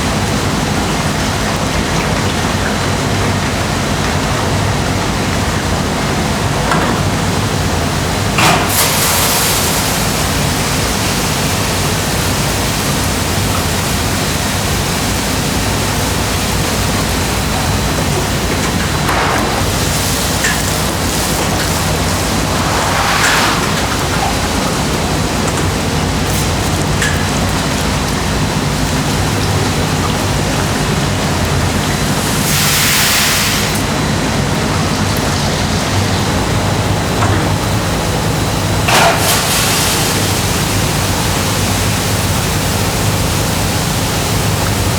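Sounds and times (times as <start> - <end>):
machinery hissing: 7.1 - 14.2, 14.8 - 27.0, 31.0 - 34.4, 37.6 - 44.9
machinery low hum: 17.0 - 28.2
loud machinery burst: 20.9 - 25.9
low hum: 21.0 - 25.7.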